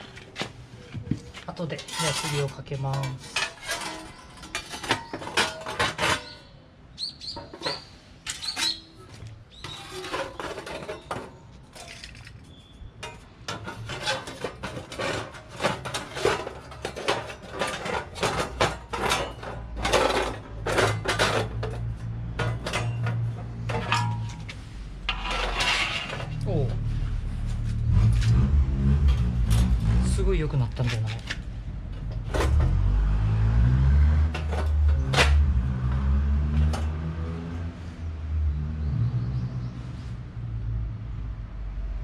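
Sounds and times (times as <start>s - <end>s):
metal sheets clanking: 1.5s - 6.5s, 7.4s - 27.2s, 28.0s - 33.0s, 34.0s - 37.1s.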